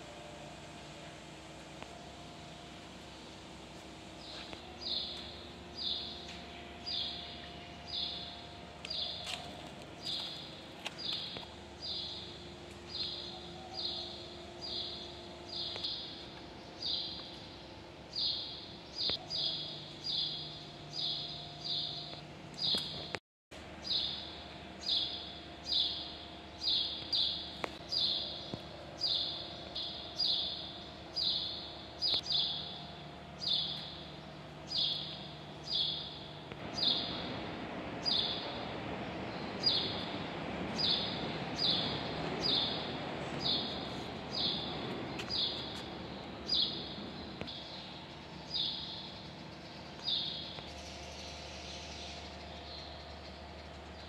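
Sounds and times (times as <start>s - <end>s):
faint steady hum: 0.0s - 54.0s
bird chirping: 23.8s - 37.3s.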